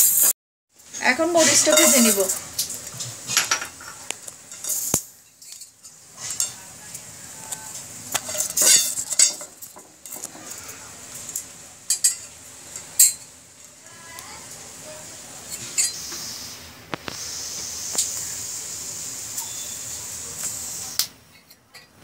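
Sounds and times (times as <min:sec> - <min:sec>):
spoon scraping a frying pan: 0:01.3 - 0:02.4, 0:03.0 - 0:06.7, 0:07.6 - 0:13.3, 0:15.4 - 0:16.2.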